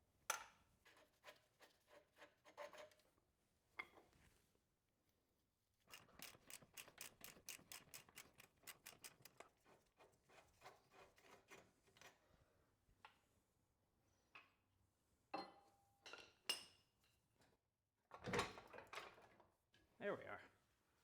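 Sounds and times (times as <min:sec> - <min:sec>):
ratchet wrench clicking: 0:05.9 - 0:09.4.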